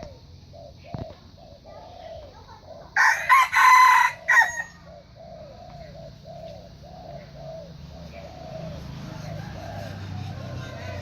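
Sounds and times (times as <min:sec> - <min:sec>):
soft low bird calls: 0:00.0 - 0:03.1, 0:04.0 - 0:11.0
rooster crowing: 0:03.0 - 0:04.9, 0:09.0 - 0:11.0.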